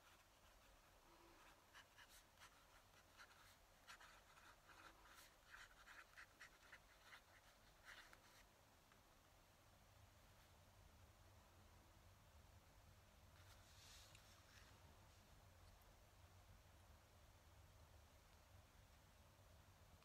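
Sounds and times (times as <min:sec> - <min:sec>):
pen nib scratching on paper: 0:00.0 - 0:08.5.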